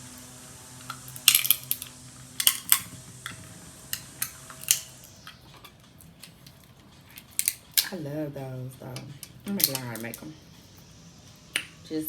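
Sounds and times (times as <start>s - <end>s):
crab shells cracking: 0.2s - 8.0s, 9.0s - 10.3s.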